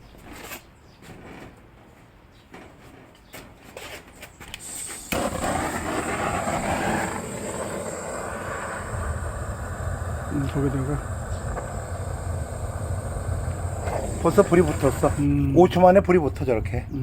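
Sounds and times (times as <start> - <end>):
gas torch hissing: 4.6 - 16.5.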